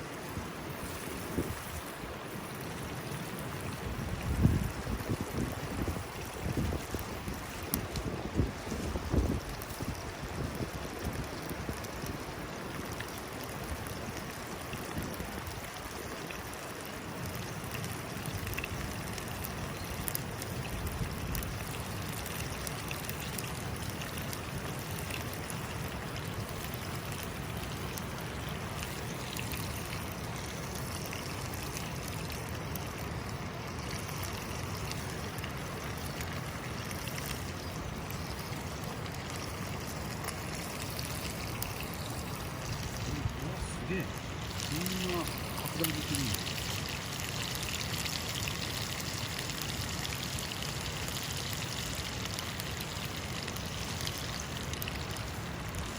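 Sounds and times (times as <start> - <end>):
river rushing: 24.8 - 50.3.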